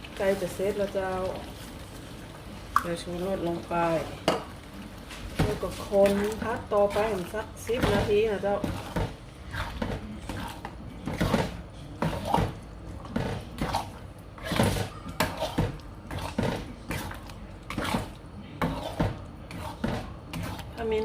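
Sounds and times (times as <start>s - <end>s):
paste frying: 0.0s - 21.0s
spatula scraping a pan: 5.4s - 21.0s.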